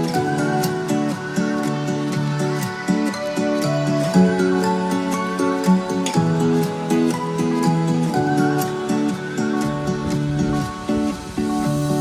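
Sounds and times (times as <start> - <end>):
acoustic guitar melody: 0.0 - 12.0.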